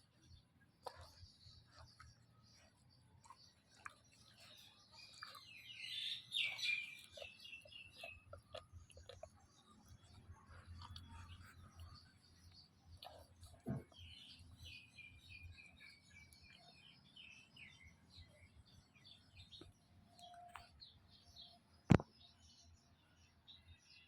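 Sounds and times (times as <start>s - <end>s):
high chirping calls: 3.7s - 8.6s.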